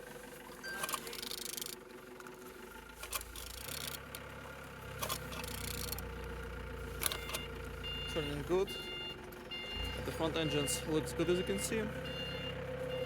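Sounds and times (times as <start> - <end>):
engine turned by hand clattering: 0.0 - 13.0.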